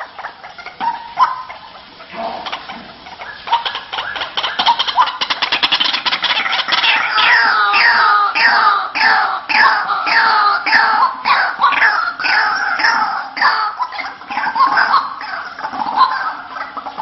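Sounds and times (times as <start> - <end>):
bird harsh call notes: 0.8 - 16.2
bird rapidly repeated notes: 3.2 - 8.7.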